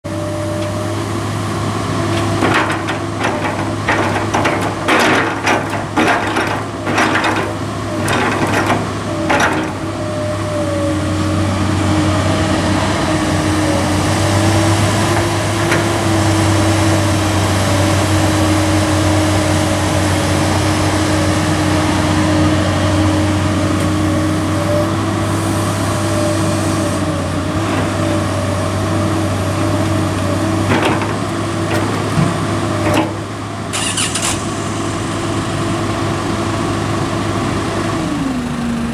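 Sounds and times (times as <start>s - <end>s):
excavator diesel engine running: 0.0s - 38.9s
bucket knocking and clattering: 2.1s - 9.9s.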